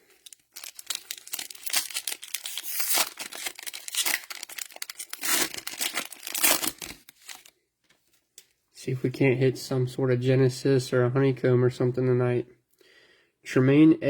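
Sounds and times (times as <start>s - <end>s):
cellophane wrappers crinkling: 0.0s - 7.5s.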